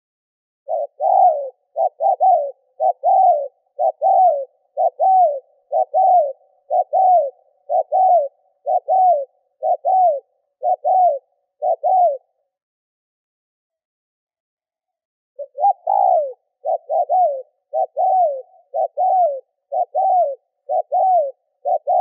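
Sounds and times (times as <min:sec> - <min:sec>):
dove cooing: 0:00.7 - 0:12.4, 0:15.4 - 0:22.0.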